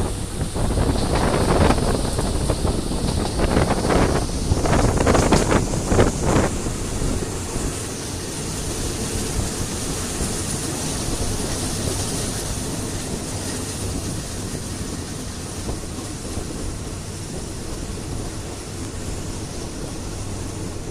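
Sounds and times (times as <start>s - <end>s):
wind rushing: 0.0s - 14.6s
train carriage rumbling: 0.0s - 20.9s.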